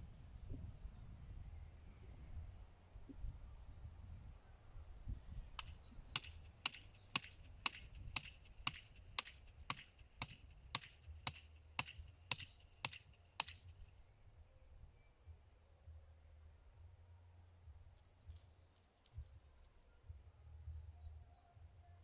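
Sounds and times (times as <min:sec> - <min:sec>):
hammer striking nail into wood: 0:05.6 - 0:13.6.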